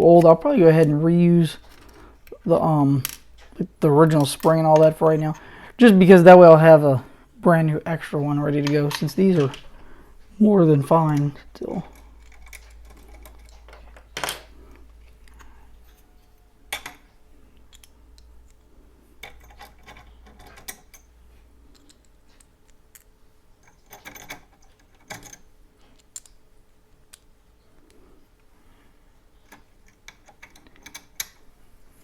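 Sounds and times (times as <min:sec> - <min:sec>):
small parts clicking and tapping: 0:01.6 - 0:05.6, 0:08.3 - 0:09.9, 0:10.9 - 0:28.5, 0:29.3 - 0:31.5.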